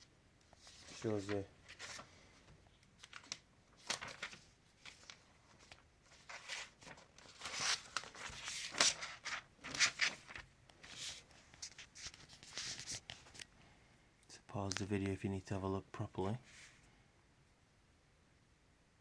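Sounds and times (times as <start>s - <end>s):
paper pages rustling: 0.4s - 13.5s.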